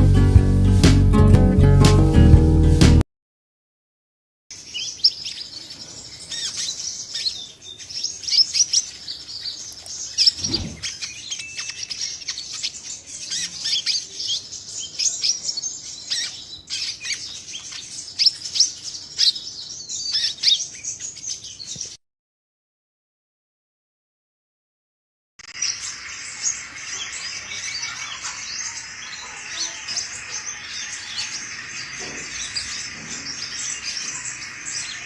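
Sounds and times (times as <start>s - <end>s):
sunbird chirping: 4.5s - 22.0s, 25.4s - 35.0s.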